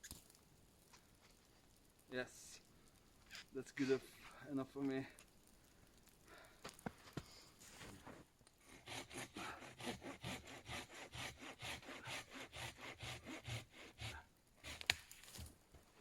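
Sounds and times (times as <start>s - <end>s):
hand saw cutting wood: 8.6s - 15.0s.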